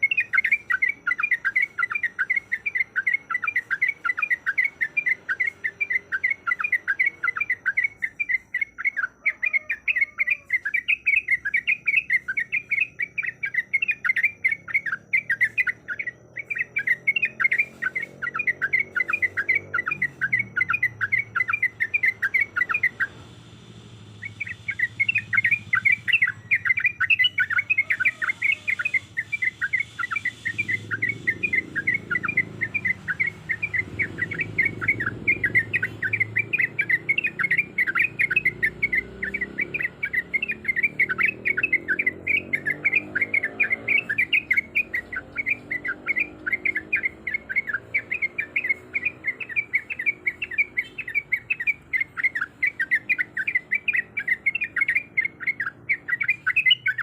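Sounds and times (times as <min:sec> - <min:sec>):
bird singing rapid chirps: 0:00.0 - 0:57.0.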